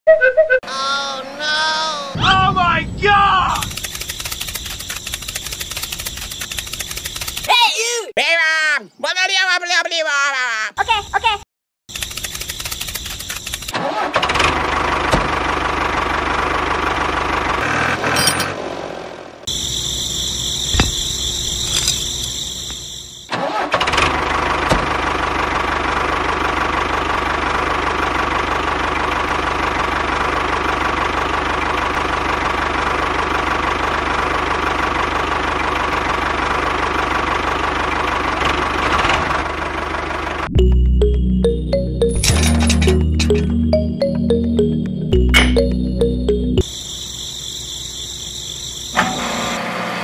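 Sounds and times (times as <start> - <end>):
tractor engine running: 3.6 - 7.5, 11.9 - 18.8, 19.5 - 46.7.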